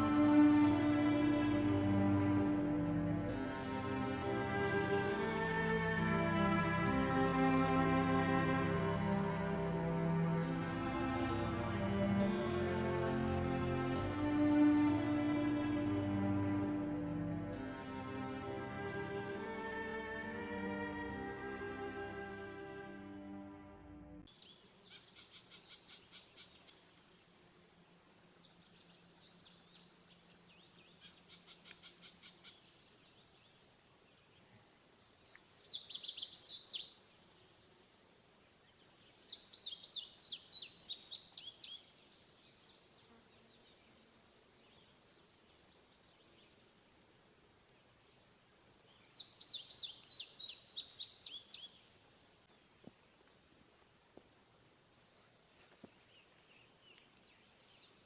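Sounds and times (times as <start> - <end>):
bird chirping: 24.2 - 37.5, 38.6 - 46.7, 48.0 - 53.8, 54.4 - 58.0
faint bird calls: 28.5 - 33.5.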